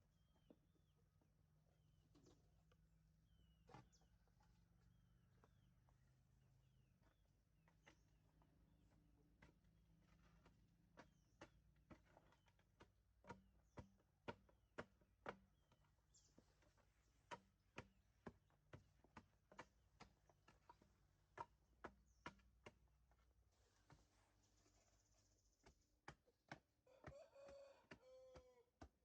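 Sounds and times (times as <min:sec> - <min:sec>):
faint irregular knocks: 0:07.0 - 0:29.0.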